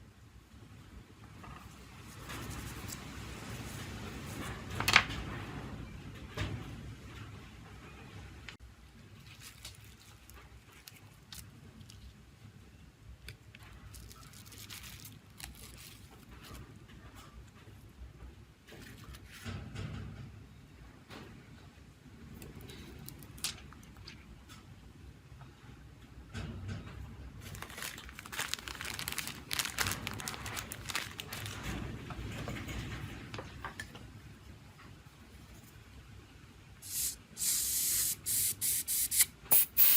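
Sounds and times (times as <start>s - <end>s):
faint scratching and crinkling: 9.1s - 12.6s, 13.7s - 17.8s, 27.4s - 32.0s.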